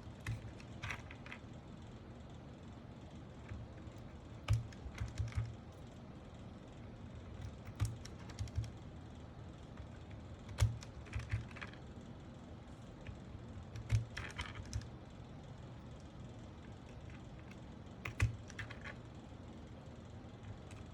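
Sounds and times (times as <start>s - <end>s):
plastic keyboard parts clicking: 0.1s - 1.4s, 3.4s - 5.6s, 7.3s - 8.8s, 9.8s - 11.8s, 13.0s - 15.0s, 16.7s - 19.0s.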